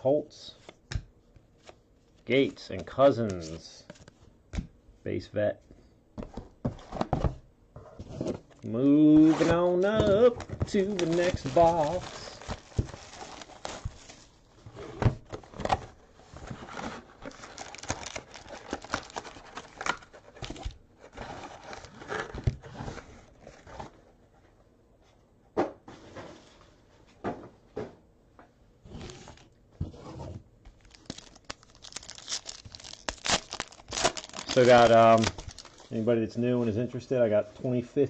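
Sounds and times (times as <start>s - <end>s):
card packs crinkling: 9.1s - 14.4s, 15.3s - 22.4s, 30.7s - 36.0s
wrapping being torn open: 17.2s - 20.6s, 30.8s - 35.9s.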